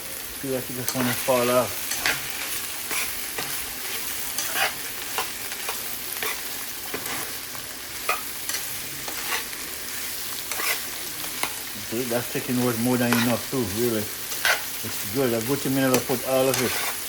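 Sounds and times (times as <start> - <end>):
chicken sizzling in hot oil: 0.0 - 17.0
spoon scraping a pan: 0.8 - 7.4, 8.0 - 11.7, 12.5 - 13.5, 14.1 - 14.8, 15.5 - 17.0.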